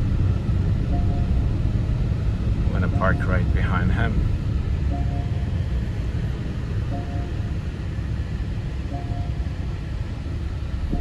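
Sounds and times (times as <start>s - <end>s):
car engine rumble: 0.0s - 11.0s
short beeps: 0.9s - 1.5s, 4.9s - 5.6s, 6.9s - 7.6s, 8.9s - 9.5s.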